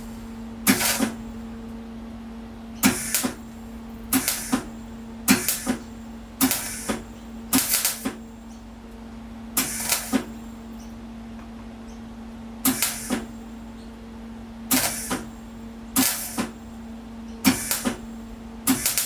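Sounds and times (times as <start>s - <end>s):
steady low hum: 0.0s - 19.0s
welder crackling bursts: 0.6s - 1.3s, 2.8s - 3.5s, 4.1s - 4.7s, 5.3s - 8.2s, 9.6s - 10.3s, 12.6s - 13.3s, 14.7s - 15.3s, 16.0s - 16.6s, 17.5s - 18.1s, 18.7s - 19.0s.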